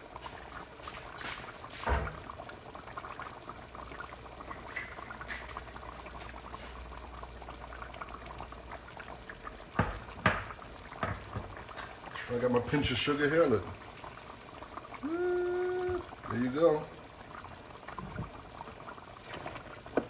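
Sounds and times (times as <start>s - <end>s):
sauce bubbling in a pot: 0.0s - 20.0s
knock: 9.8s - 11.5s.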